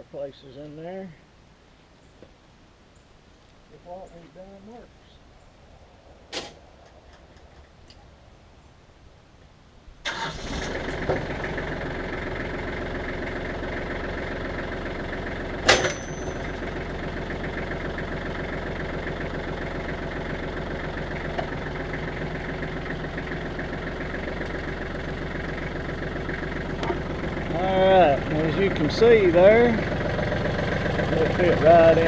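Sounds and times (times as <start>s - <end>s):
tractor engine idling: 10.0s - 32.0s
sharp metal clank: 15.6s - 16.6s.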